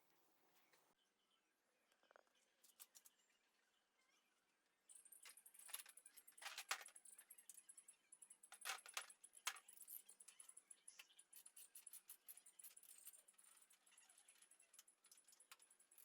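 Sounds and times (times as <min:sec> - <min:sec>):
small metal parts clinking: 0:04.9 - 0:16.0.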